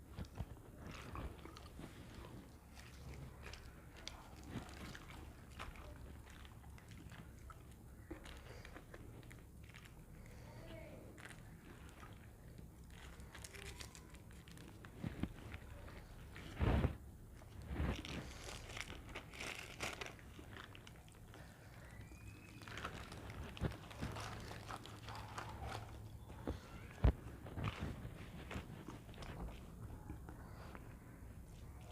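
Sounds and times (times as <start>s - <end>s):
person crunching and chewing: 0.1s - 10.5s, 17.4s - 26.2s.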